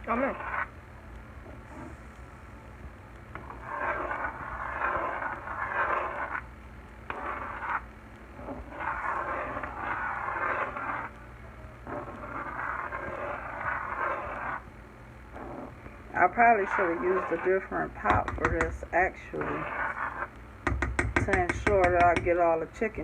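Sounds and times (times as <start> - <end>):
chicken scraping and sizzling in pot: 0.1 - 0.7, 3.3 - 6.5, 7.1 - 11.2, 11.8 - 14.7, 15.3 - 22.4
sauce simmering: 1.2 - 21.3.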